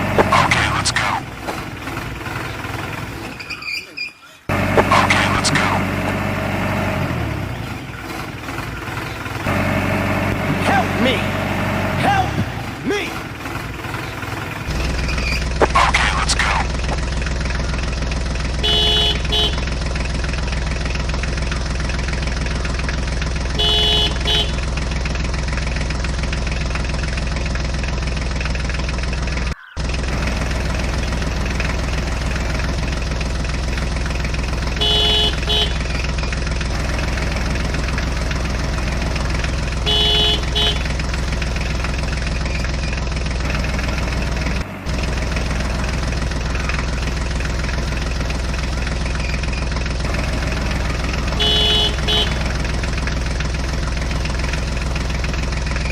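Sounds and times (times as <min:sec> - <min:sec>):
vehicle engine idling: 0:00.0 - 0:55.9
double horn beep: 0:18.6 - 0:19.7, 0:23.5 - 0:24.7, 0:34.7 - 0:36.1, 0:38.7 - 0:41.0, 0:50.1 - 0:52.8.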